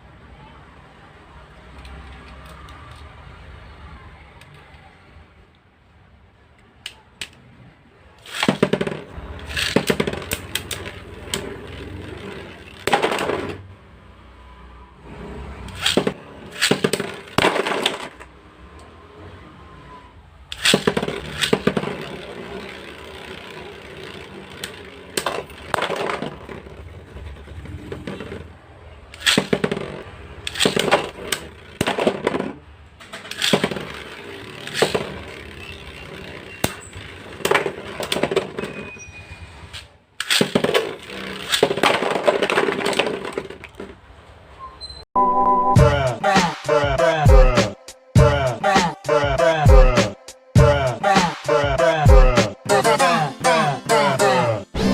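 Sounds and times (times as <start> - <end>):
spinning tops clattering and scraping: 8.2 - 13.6, 20.6 - 28.5, 29.2 - 38.7, 39.8 - 43.9
plastic clacks: 39.8 - 44.0.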